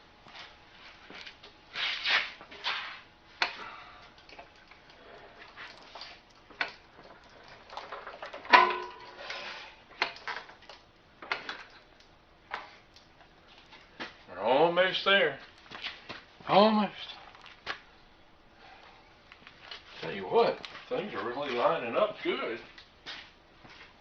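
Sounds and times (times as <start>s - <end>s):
metal clanks and knocks: 7.8s - 9.4s.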